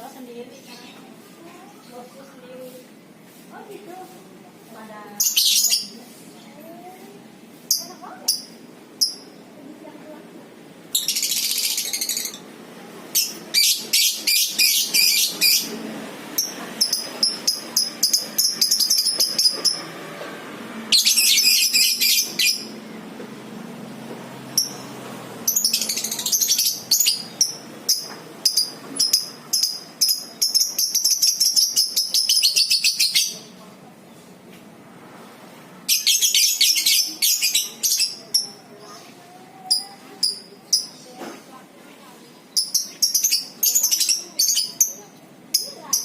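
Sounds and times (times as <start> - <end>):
lovebirds chattering trills: 13.1 - 19.9, 20.9 - 22.8, 24.5 - 33.5.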